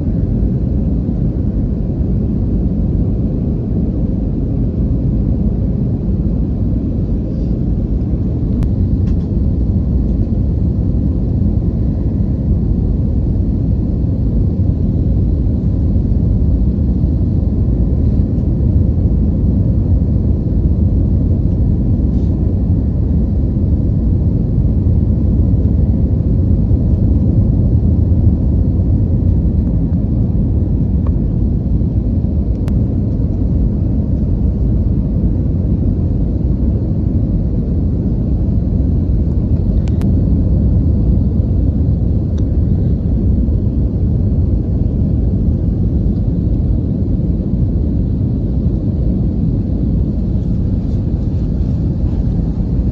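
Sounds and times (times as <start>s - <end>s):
airliner cabin rumble: 0.0s - 52.9s.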